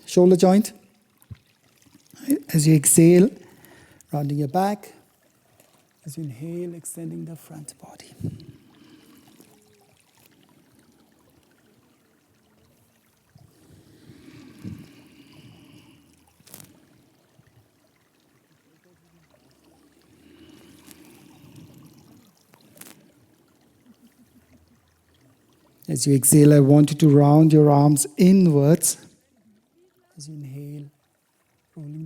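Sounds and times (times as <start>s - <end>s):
deep breaths: 3.4s - 4.1s, 8.0s - 11.6s, 13.4s - 17.4s, 19.9s - 23.6s.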